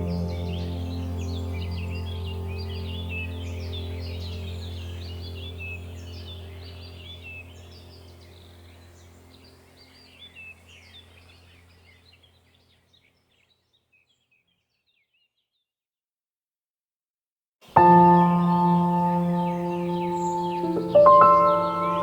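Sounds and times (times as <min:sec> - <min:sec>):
steady low drone: 0:00.0 - 0:10.7, 0:17.8 - 0:22.0
birds chirping and calling: 0:00.0 - 0:15.3, 0:18.0 - 0:22.0.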